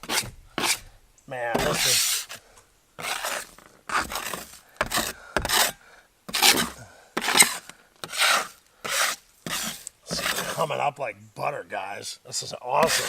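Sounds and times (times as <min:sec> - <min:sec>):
metal scraper rasping under carpet: 0:00.0 - 0:00.9, 0:01.6 - 0:02.4, 0:03.0 - 0:10.7, 0:12.8 - 0:13.0.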